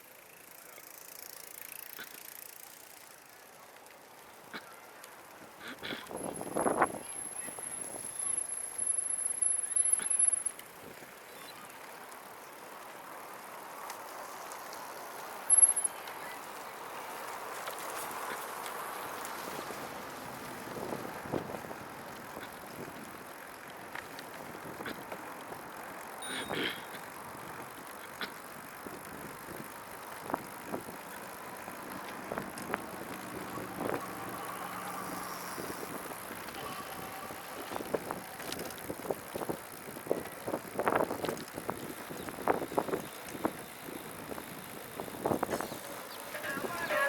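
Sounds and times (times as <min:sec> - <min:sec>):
tyre and wind noise: 0:05.8 - 0:07.2, 0:19.3 - 0:25.7, 0:27.2 - 0:47.0.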